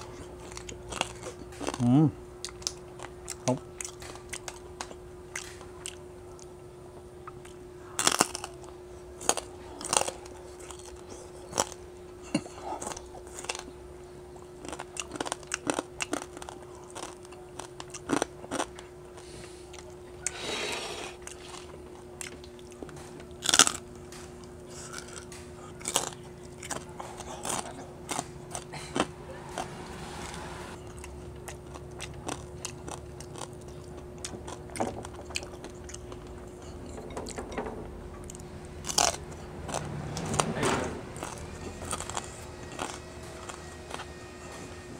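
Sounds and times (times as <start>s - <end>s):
person chewing crispy pork: 0.0s - 6.5s, 7.2s - 29.7s, 30.8s - 36.9s, 38.2s - 44.2s.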